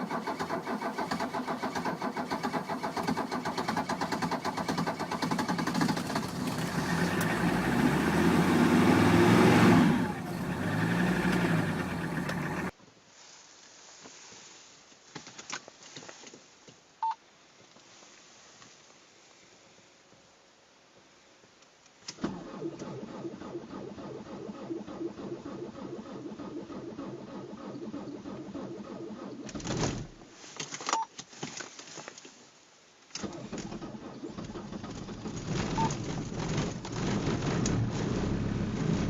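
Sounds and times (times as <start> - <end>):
diesel engine running: 0.1 - 12.7, 37.0 - 39.0
clicks: 11.2 - 12.7.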